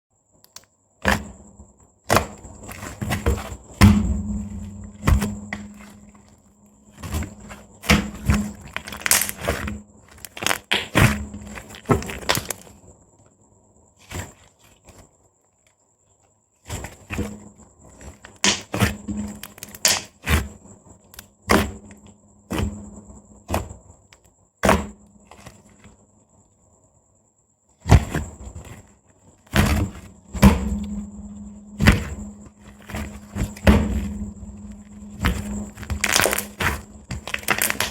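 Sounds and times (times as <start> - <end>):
slime popping and clicking: 8.8 - 9.6, 10.2 - 11.1, 35.3 - 37.9.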